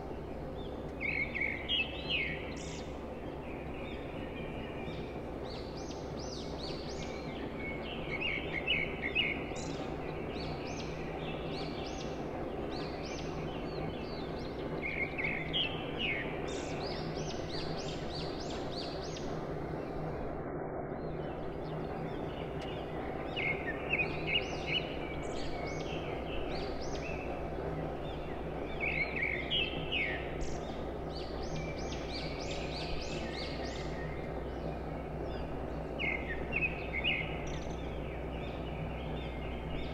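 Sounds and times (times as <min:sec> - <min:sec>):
birds chirping: 0:21.1 - 0:39.9.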